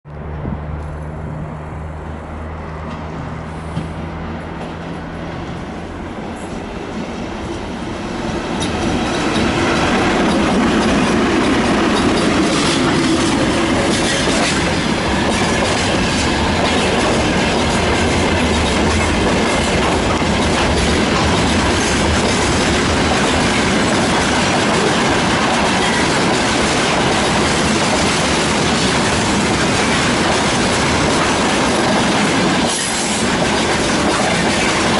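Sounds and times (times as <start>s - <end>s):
electric locomotive hum: 0.1s - 34.9s
wheel-on-rail noise: 0.2s - 34.9s
wheels clicking over rail joints: 8.5s - 34.9s.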